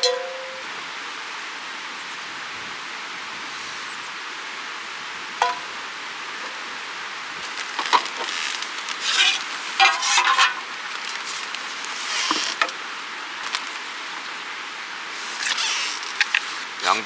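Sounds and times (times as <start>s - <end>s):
creek rushing: 0.6s - 17.0s
cooking gear clinking and rustling: 7.4s - 12.8s.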